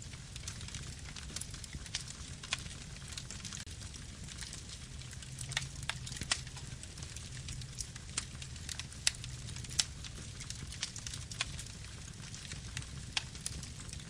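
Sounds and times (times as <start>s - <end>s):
wood fire burning: 0.0s - 14.0s.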